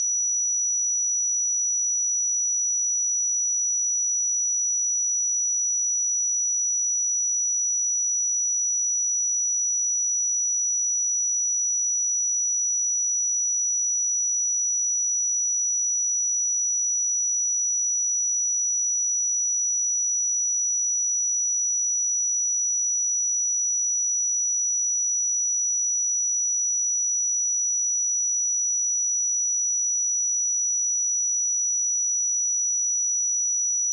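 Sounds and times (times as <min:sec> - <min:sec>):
high-pitched sine test tone: 0:19.5 - 0:33.9.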